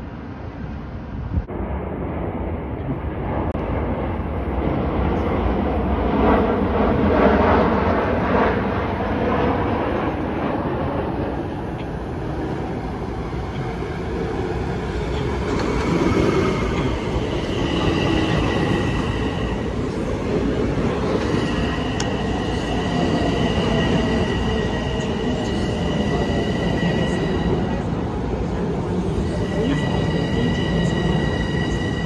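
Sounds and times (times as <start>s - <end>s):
train rumbling on rails: 0.0s - 32.0s
high steady squeal: 15.2s - 28.0s, 28.9s - 32.0s.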